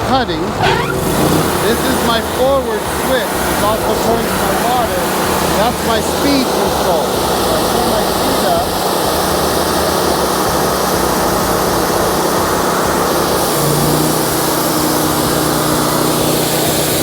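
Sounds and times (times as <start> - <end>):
band blade sawing through log: 0.0 - 10.3
sawmill engine running under load: 0.0 - 17.0
steady low hum: 0.0 - 17.0.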